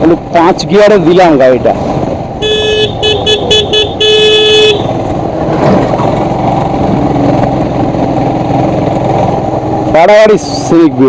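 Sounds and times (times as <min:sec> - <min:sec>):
vehicle horn tooting: 0:02.4 - 0:04.9.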